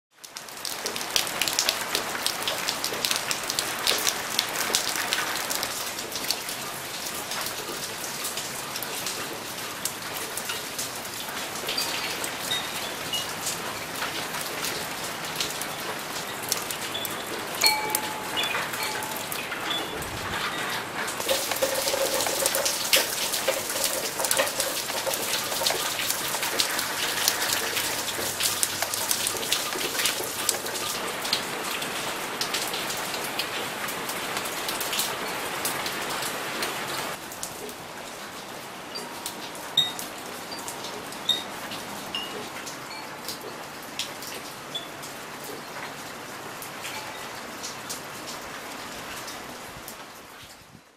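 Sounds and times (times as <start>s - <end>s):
close raindrops ticking and splashing: 0.1s - 50.9s
rain on paving and plants: 0.1s - 50.9s.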